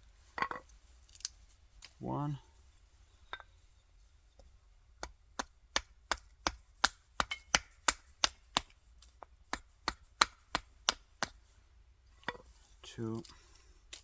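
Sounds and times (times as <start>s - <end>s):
axe chopping wood: 5.0s - 11.4s.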